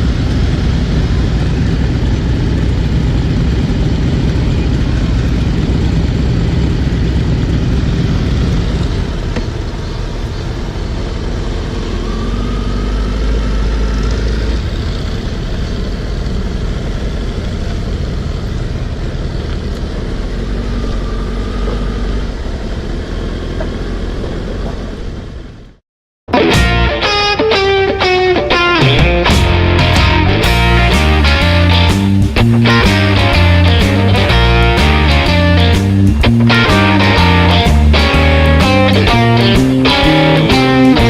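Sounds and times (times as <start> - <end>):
motorcycle engine idling: 0.0 - 12.7.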